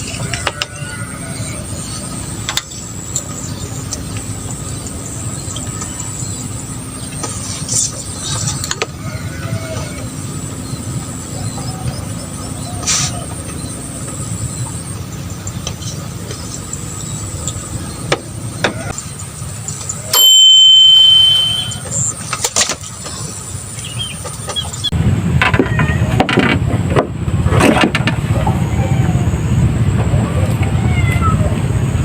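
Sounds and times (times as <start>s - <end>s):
high-pitched beep: 20.1s - 22.1s.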